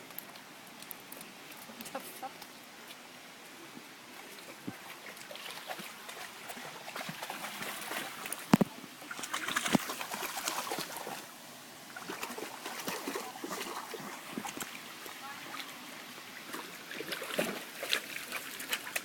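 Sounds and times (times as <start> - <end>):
dog splashing in water: 4.8 - 11.2, 12.0 - 14.7, 16.5 - 19.0.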